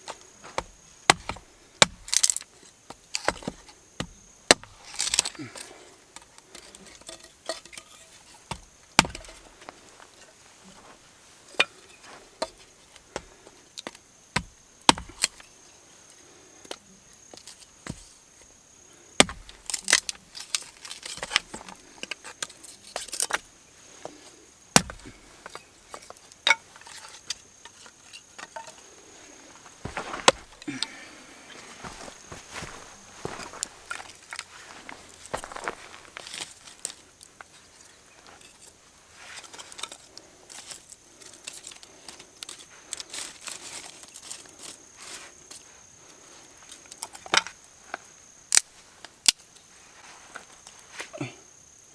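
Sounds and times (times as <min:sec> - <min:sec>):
high insect trill: 0:00.0 - 0:51.9
wood being chopped: 0:00.5 - 0:05.3, 0:08.5 - 0:09.4, 0:12.5 - 0:15.4, 0:19.2 - 0:20.2, 0:24.7 - 0:25.2, 0:29.8 - 0:30.9, 0:31.8 - 0:34.1.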